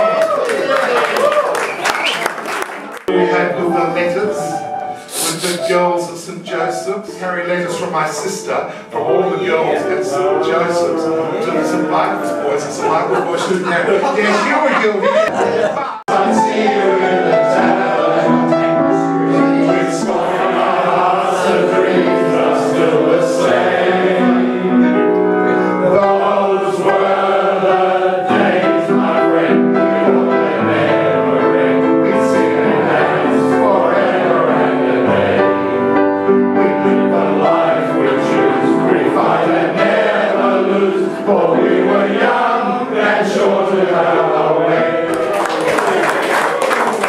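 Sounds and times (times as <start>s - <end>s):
choir singing: 3.1s - 47.0s.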